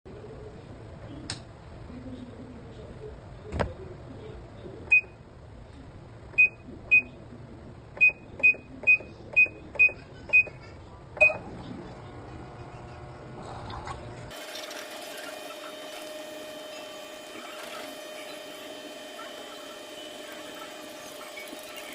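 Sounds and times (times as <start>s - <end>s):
short electronic beeps: 6.4s - 7.2s.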